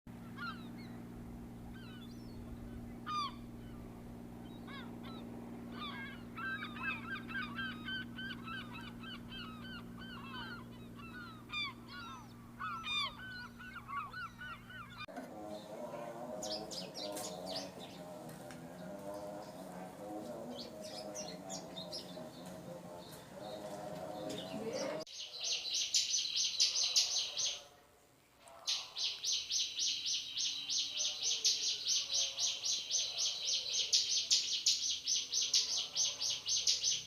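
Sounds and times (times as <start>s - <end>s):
steady low hum: 0.1s - 27.5s
bird singing chirps and trills: 1.7s - 18.2s, 18.8s - 27.7s, 28.7s - 37.0s.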